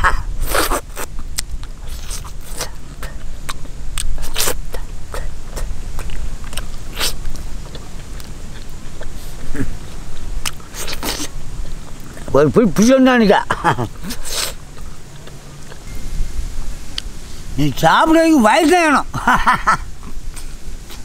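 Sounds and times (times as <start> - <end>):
man chewing meat: 0.0 - 17.5, 19.5 - 21.0
steady low rumble: 0.0 - 21.0
wet mouth smacks and clicks: 0.4 - 12.3, 14.0 - 15.9.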